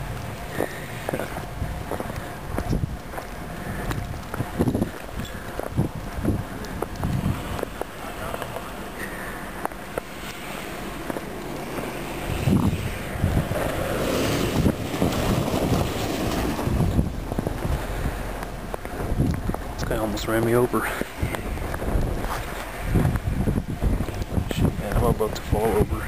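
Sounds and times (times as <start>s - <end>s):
car driving through slush: 0.0s - 24.2s
wind buffeting microphone: 0.0s - 26.0s.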